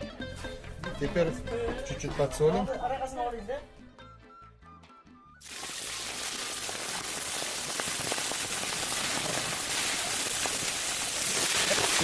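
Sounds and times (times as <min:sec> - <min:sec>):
chicken sizzling in hot oil: 0:05.4 - 0:12.0.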